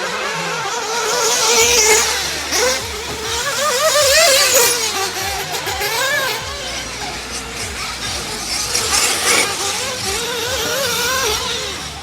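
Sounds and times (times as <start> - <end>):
small engines whining: 0.0 - 12.0.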